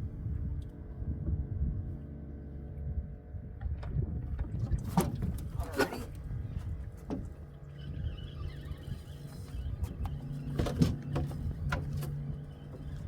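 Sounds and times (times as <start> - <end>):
low rumble: 0.0 - 8.2
motor humming: 5.3 - 13.0.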